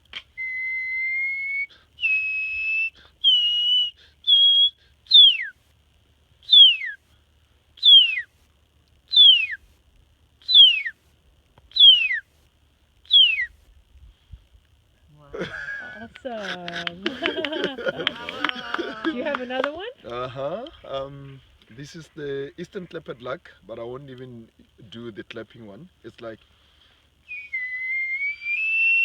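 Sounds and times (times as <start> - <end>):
man whistling a birdcall: 0.1 - 5.6, 6.4 - 7.0, 7.8 - 8.4, 9.1 - 9.6, 10.4 - 11.0, 11.7 - 12.3, 13.1 - 13.6, 27.2 - 29.0.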